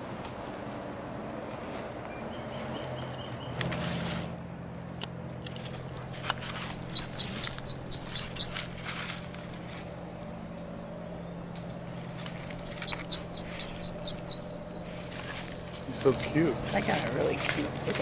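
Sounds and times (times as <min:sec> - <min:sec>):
warbler singing: 0:05.6 - 0:18.0.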